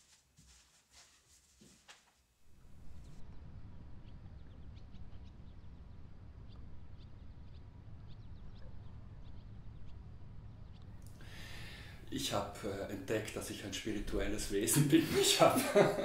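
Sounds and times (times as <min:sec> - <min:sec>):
small birds chirping: 0:02.5 - 0:15.5
low rumble: 0:02.6 - 0:11.1.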